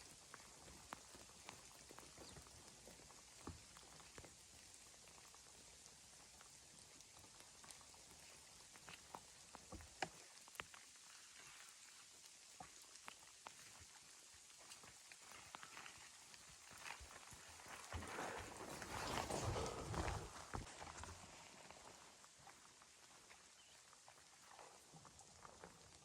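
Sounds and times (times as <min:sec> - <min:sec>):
light ticks and taps: 0:08.8 - 0:10.8.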